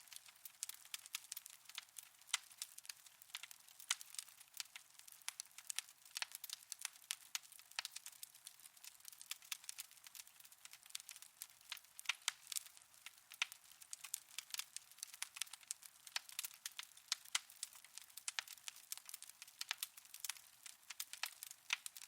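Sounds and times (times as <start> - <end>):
faint hiss: 0.0 - 1.8
wood fire crackling: 0.0 - 22.0.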